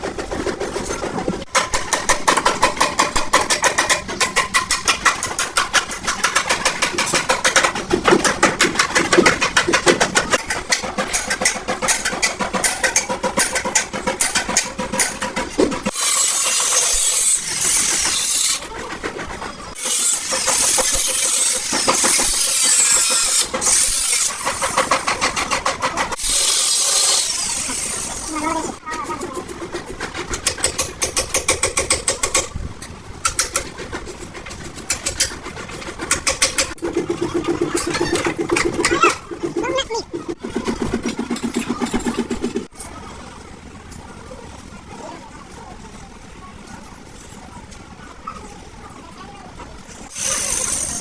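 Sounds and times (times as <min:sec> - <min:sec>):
rapid metal strikes: 0:00.0 - 0:18.8, 0:19.7 - 0:28.4, 0:29.6 - 0:32.6
loud hissing bursts: 0:15.9 - 0:18.6, 0:19.8 - 0:25.5, 0:26.1 - 0:28.8, 0:50.0 - 0:51.0.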